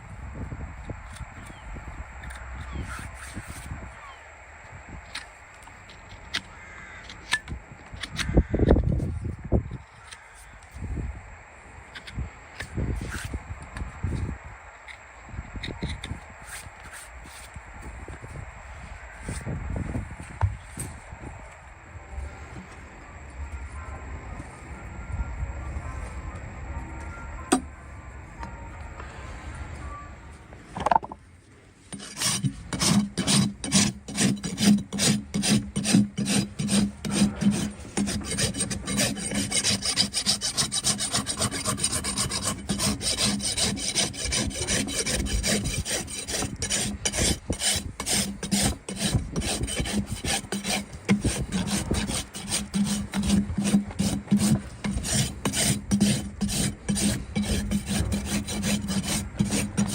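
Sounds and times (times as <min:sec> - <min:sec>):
rasp filing a hoof: 0:31.9 - 0:59.9.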